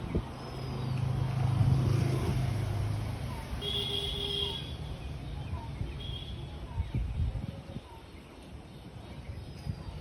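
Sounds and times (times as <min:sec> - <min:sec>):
vehicle passing by: 0:00.2 - 0:03.6.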